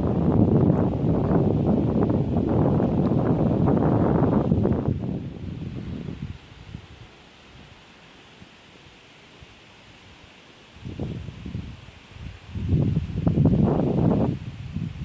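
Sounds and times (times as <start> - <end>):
low rumbling wind gusts: 0.0 - 7.1, 10.8 - 15.0
high-pitched insect chirring: 7.8 - 15.0.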